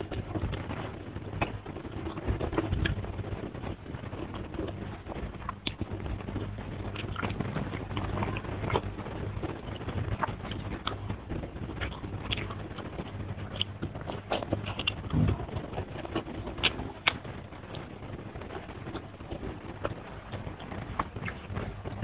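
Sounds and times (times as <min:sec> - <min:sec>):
chewing with wet mouth smacks: 0:06.9 - 0:08.8, 0:11.7 - 0:17.8.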